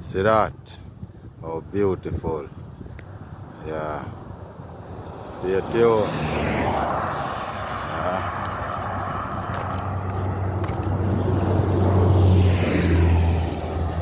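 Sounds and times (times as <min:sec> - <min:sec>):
low engine hum: 0:04.1 - 0:14.0.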